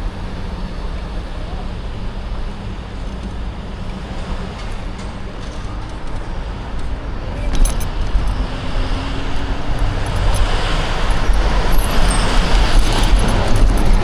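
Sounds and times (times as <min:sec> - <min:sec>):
street traffic: 0:00.0 - 0:14.0
wind rumble on microphone: 0:02.7 - 0:14.0
light rattles: 0:04.6 - 0:14.0.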